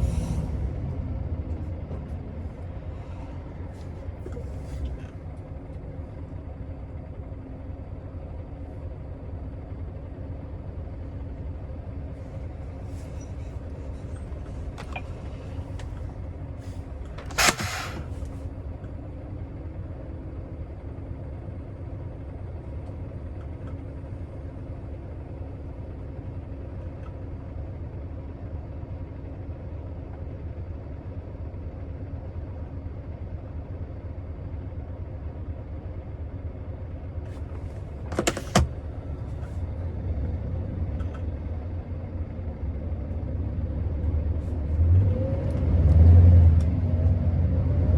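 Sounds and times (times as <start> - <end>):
diesel engine low drone: 0.0 - 47.9
short loud air hiss: 17.3 - 18.2.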